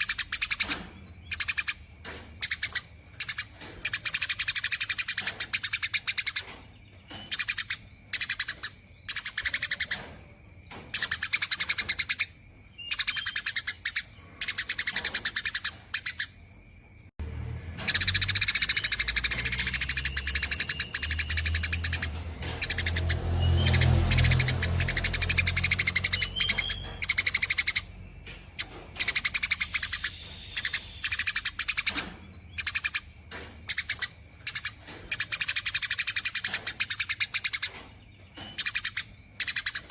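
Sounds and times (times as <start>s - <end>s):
sparrow chattering: 0.0s - 16.7s, 17.8s - 39.9s.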